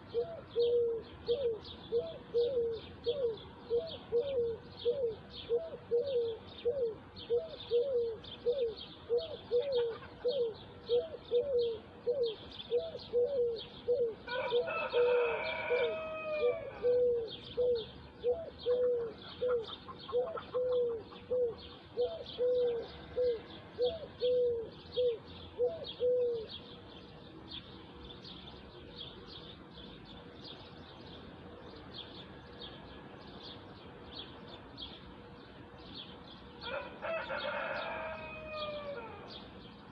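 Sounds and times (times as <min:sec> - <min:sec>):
long multi-pitched bird call: 0:00.0 - 0:29.6, 0:35.8 - 0:39.9
bird hooting: 0:00.1 - 0:26.5.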